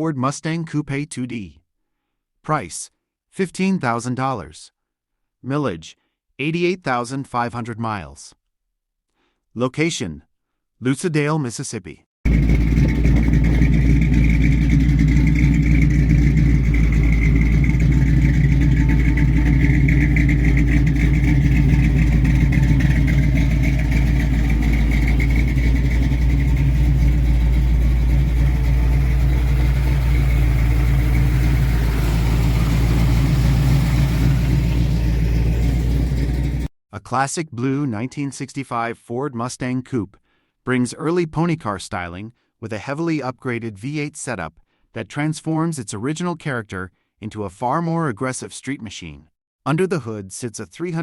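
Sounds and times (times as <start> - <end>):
car engine running loudly: 12.3 - 36.7.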